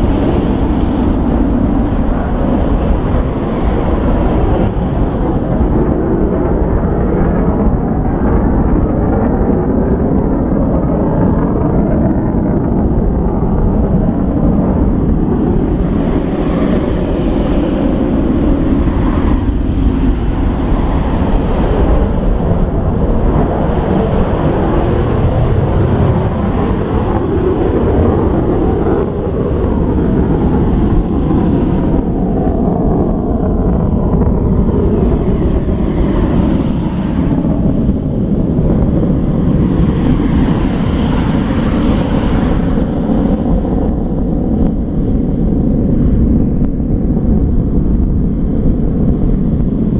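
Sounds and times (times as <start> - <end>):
jet engines roaring at takeoff: 0.0 - 49.9.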